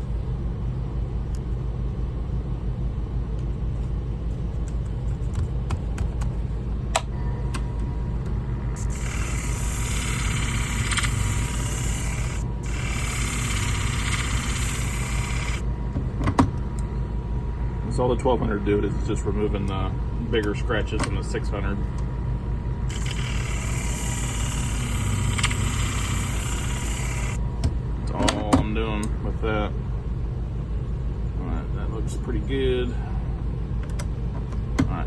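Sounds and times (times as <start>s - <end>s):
abrasive wheel whine: 7.0s - 33.8s
sharpening machine hum: 7.8s - 15.7s, 22.9s - 27.4s
blade hissing grind: 8.8s - 15.6s, 22.9s - 27.4s.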